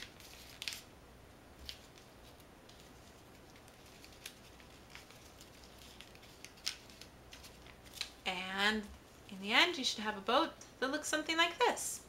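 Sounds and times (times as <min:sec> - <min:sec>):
paper crinkling: 0:00.0 - 0:00.9, 0:01.6 - 0:08.3.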